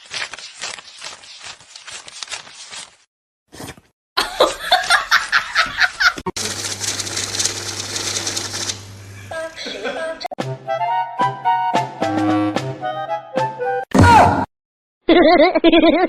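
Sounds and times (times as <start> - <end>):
people laughing: 4.2 - 6.7, 9.2 - 10.3.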